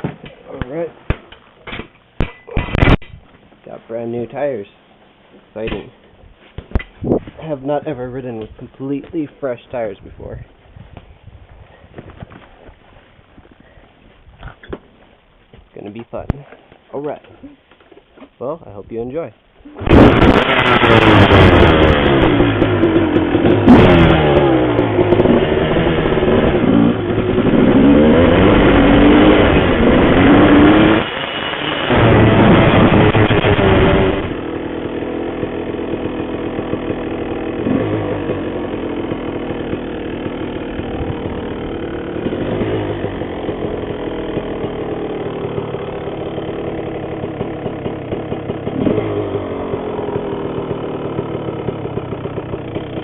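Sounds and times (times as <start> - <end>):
dirt bike engine revving: 19.8 - 53.0.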